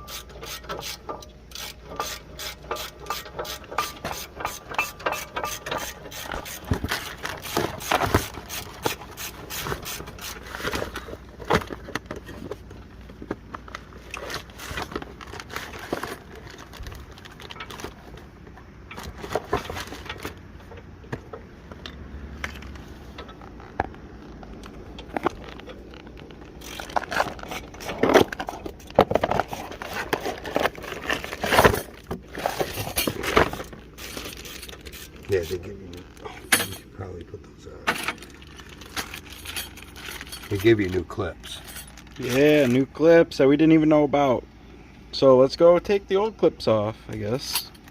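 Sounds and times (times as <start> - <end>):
metal parts clicking and knocking: 0.0 - 10.3, 37.9 - 42.8
packaging crinkling and rustling: 6.3 - 20.5, 22.5 - 36.3, 38.0 - 42.9.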